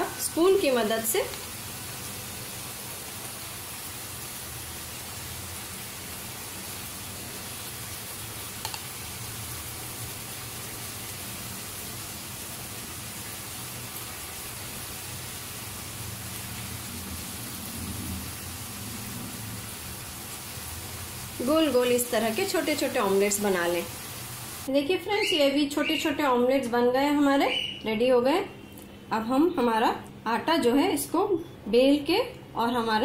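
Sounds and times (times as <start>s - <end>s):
oil sizzling in frying pan: 0.0s - 24.7s.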